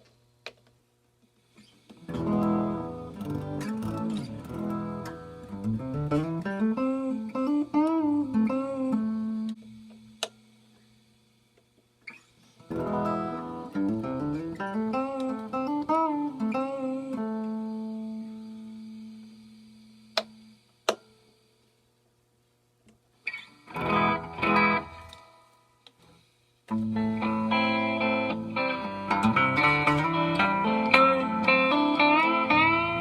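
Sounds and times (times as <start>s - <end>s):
clean electric guitar melody: 2.1s - 9.7s, 12.7s - 18.9s, 23.7s - 25.4s, 26.7s - 33.0s.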